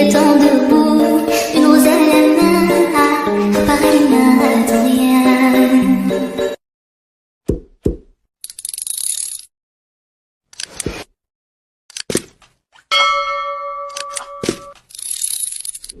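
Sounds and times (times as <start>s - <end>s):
thumps and clicks: 7.5s - 8.2s
bell-like ding: 12.9s - 14.8s.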